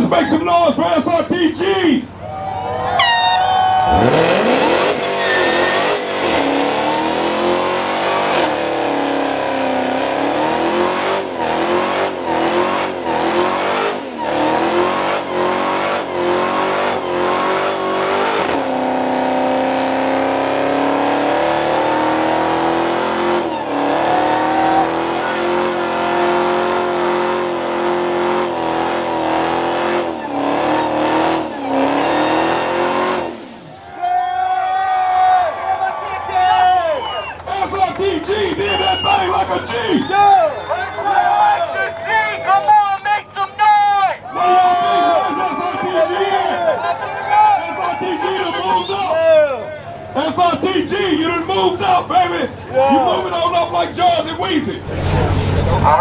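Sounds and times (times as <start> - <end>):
tyres spinning and squealing: 2.2 - 18.5, 37.1 - 42.7, 44.3 - 56.0
car engine revving: 3.0 - 33.8, 47.6 - 56.0.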